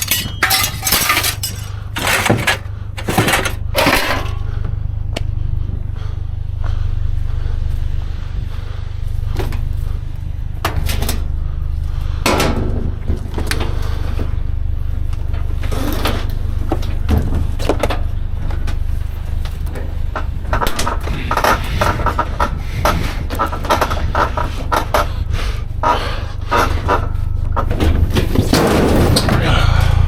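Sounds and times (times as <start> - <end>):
sheet metal clanking: 0.0 - 4.4
metal rattling clatter: 0.0 - 4.5.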